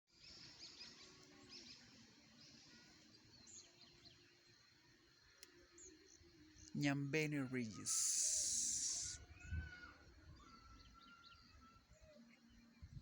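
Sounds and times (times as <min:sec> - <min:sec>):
background hiss: 0:07.7 - 0:09.2.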